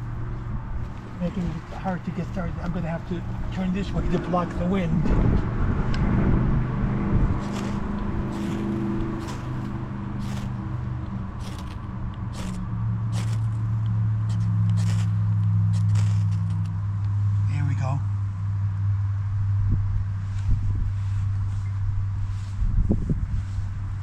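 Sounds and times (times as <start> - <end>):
wind buffeting microphone: 0.0 - 15.1, 19.5 - 24.0
sharp scratchy ticks: 7.4 - 16.8.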